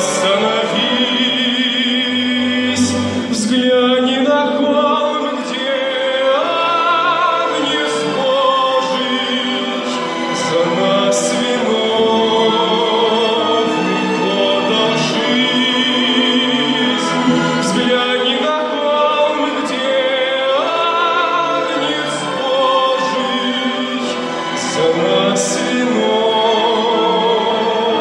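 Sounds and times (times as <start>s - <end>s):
chamber orchestra playing: 0.0s - 28.0s
person singing with vibrato: 0.0s - 28.0s.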